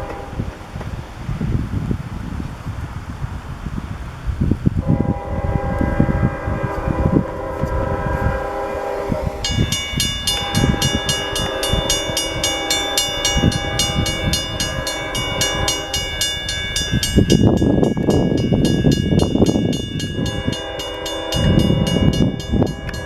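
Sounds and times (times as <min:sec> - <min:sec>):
train horn: 0:00.0 - 0:00.8, 0:04.8 - 0:23.0
train wheels rumbling and clattering: 0:00.0 - 0:23.0
bell ringing rapidly: 0:09.5 - 0:23.0.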